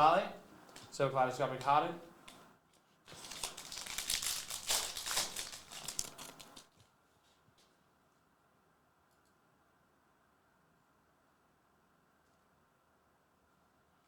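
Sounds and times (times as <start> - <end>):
plastic foil wrapper crinkling: 3.1 - 6.8.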